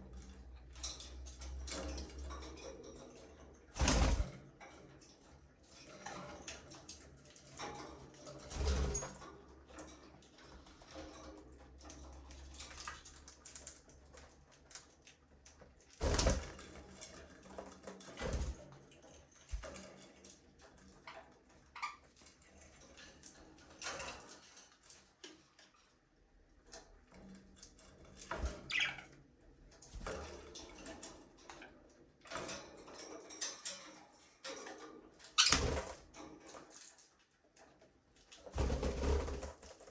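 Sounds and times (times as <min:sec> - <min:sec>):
budgerigars chirping and chattering: 0:28.7 - 0:29.0.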